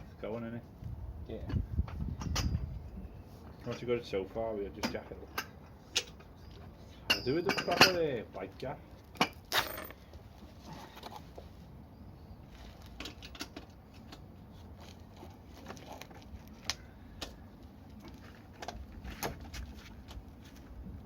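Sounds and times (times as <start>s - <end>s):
tools and metal parts clicking: 9.2s - 10.0s.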